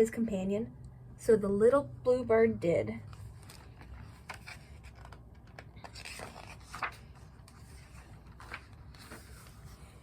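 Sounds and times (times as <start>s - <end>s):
book pages rustling: 3.0s - 10.0s.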